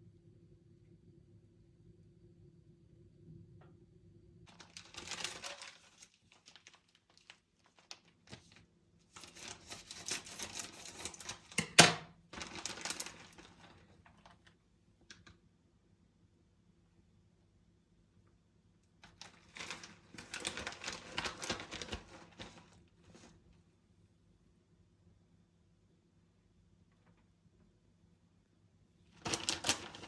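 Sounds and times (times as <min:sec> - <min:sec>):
hands handling small objects: 0:04.5 - 0:11.8.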